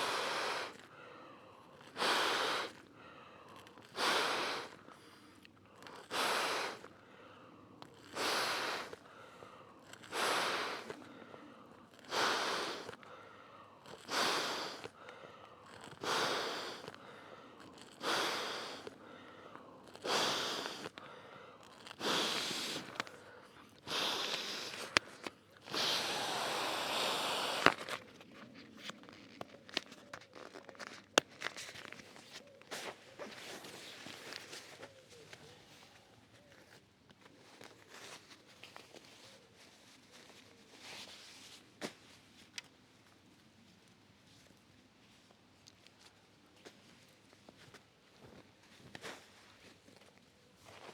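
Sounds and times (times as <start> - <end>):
strong breaths blowing up air mat: 0.0 - 5.2, 5.8 - 28.1
rustling: 21.6 - 42.2.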